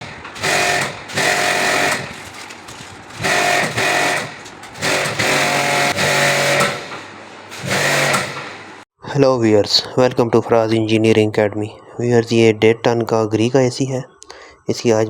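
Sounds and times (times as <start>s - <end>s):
pressure washer motor whine: 0.0s - 8.8s.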